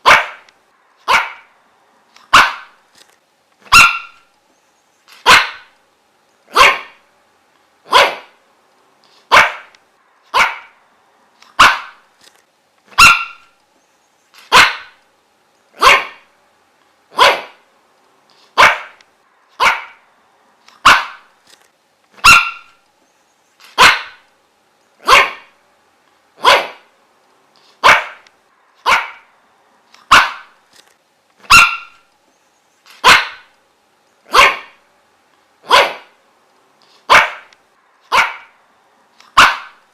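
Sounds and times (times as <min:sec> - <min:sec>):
dog barking: 0:00.0 - 0:01.5, 0:02.3 - 0:02.8, 0:03.7 - 0:04.3, 0:05.2 - 0:05.7, 0:06.5 - 0:07.0, 0:07.9 - 0:08.4, 0:09.3 - 0:09.7, 0:10.3 - 0:10.8, 0:11.6 - 0:12.0, 0:12.9 - 0:13.5, 0:14.5 - 0:15.0, 0:15.8 - 0:16.3, 0:17.1 - 0:17.6, 0:18.6 - 0:19.0, 0:19.6 - 0:20.0, 0:20.8 - 0:21.3, 0:22.2 - 0:22.8, 0:23.8 - 0:24.2, 0:25.0 - 0:25.6, 0:26.4 - 0:26.9, 0:27.8 - 0:28.2, 0:28.8 - 0:29.3, 0:30.1 - 0:30.6, 0:31.4 - 0:32.0, 0:33.0 - 0:33.5, 0:34.3 - 0:34.8, 0:35.6 - 0:36.2, 0:37.1 - 0:37.5, 0:38.1 - 0:38.6, 0:39.3 - 0:39.8
faint steady hum: 0:00.0 - 0:39.9.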